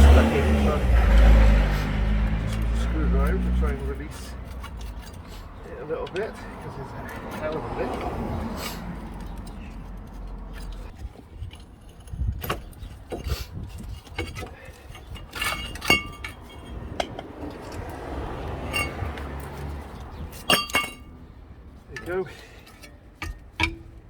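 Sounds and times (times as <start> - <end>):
metal tools clinking: 2.4 - 18.0, 18.6 - 24.0.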